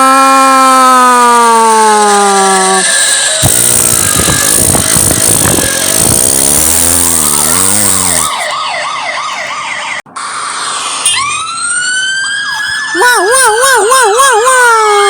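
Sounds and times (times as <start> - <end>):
police siren wailing: 0.4 - 15.0.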